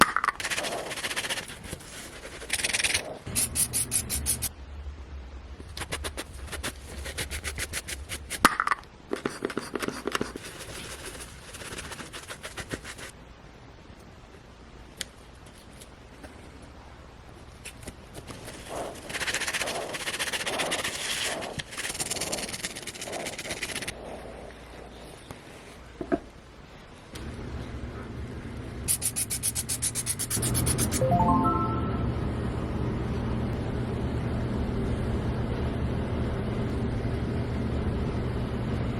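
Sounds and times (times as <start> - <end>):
brush scrubbing a hat: 0.4 - 4.5, 5.8 - 8.5, 9.1 - 13.1, 18.2 - 24.0, 28.9 - 31.0.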